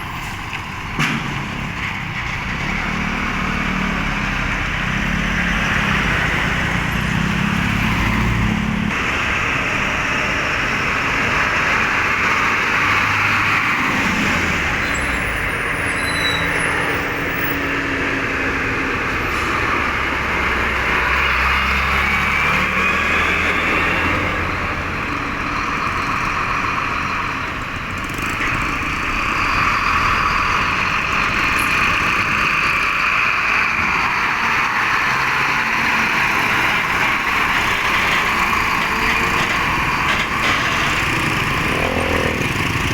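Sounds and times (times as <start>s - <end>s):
trucks driving past: 0.0s - 42.9s.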